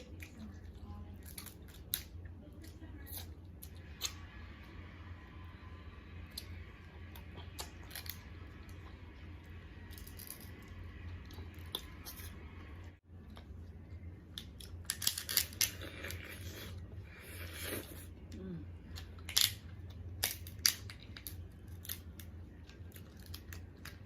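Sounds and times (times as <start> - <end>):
steady low hum: 0.0 - 24.0
crab shell cracking: 14.4 - 15.8, 19.2 - 22.3, 22.9 - 24.0.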